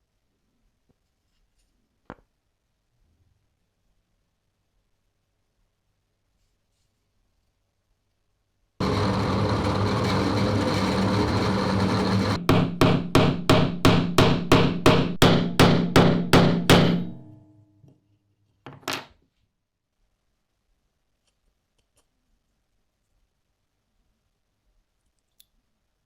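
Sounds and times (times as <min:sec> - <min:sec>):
machine humming: 0:08.8 - 0:13.6
sharp hammer-like knocks: 0:12.3 - 0:17.6.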